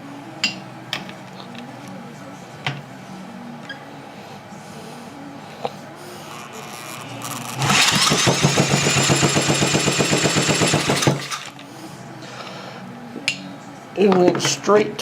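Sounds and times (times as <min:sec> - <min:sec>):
electric drill motor whine: 0:06.2 - 0:11.6
engine compression pulses: 0:06.2 - 0:11.6.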